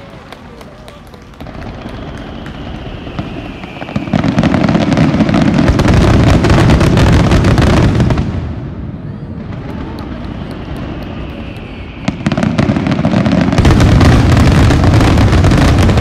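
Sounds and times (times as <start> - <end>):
fireworks crackling and booming: 0.0 - 16.0
firework whistle: 1.5 - 7.1, 9.0 - 16.0.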